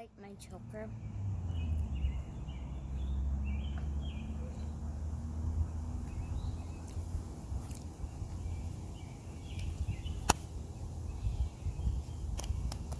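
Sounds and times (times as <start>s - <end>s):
wind rumble on microphone: 5.6s - 12.9s.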